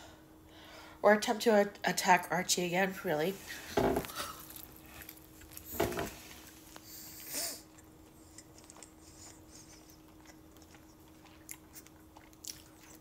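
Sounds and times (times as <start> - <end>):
steady low hum: 0.0 - 13.0
person chewing food: 4.0 - 13.0.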